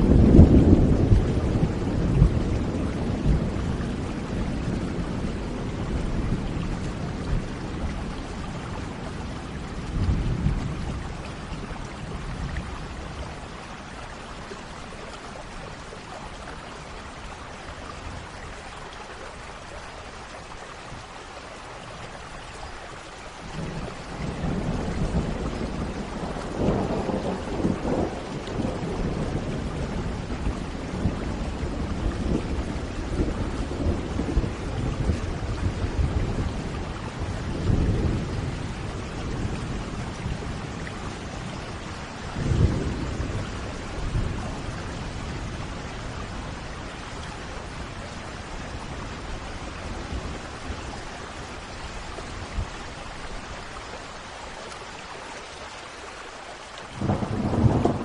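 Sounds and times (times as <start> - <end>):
rolling thunder: 0.0 - 13.2, 23.6 - 51.0, 57.0 - 58.0
steady rain: 0.0 - 58.0.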